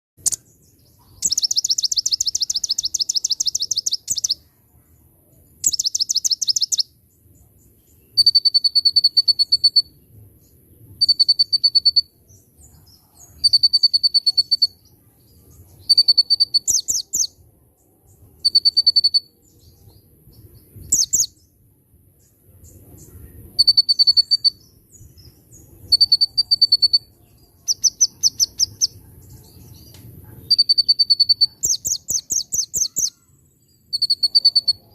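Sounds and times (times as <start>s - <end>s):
songbird high trills: 1.0s - 4.4s, 5.6s - 6.9s, 15.8s - 17.3s, 20.8s - 21.4s, 23.6s - 24.7s, 25.9s - 29.0s, 30.4s - 34.9s.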